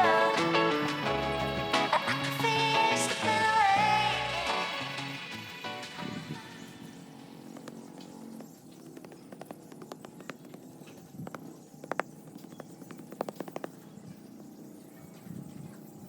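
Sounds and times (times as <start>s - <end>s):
hard objects tapping and clicking: 7.6s - 13.8s.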